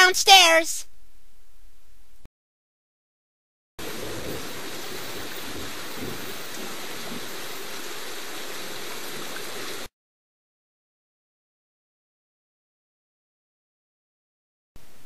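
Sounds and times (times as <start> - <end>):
steady rain falling: 3.8 - 9.9.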